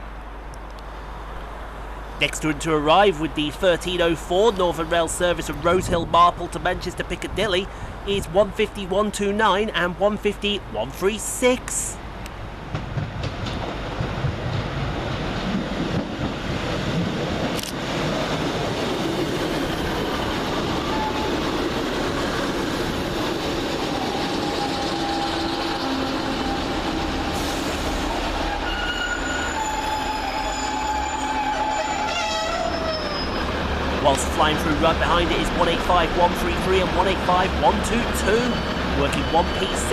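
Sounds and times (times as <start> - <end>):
diesel train engine: 0.0 - 39.9
wheel and brake squeal: 28.4 - 33.5, 38.4 - 39.9.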